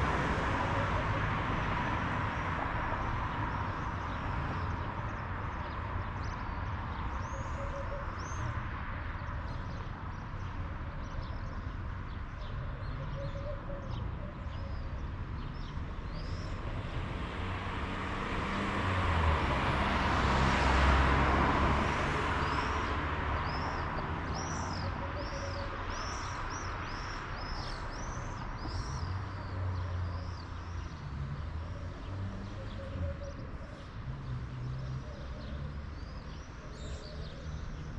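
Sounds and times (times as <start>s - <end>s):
vehicle passing by: 16.3s - 24.8s.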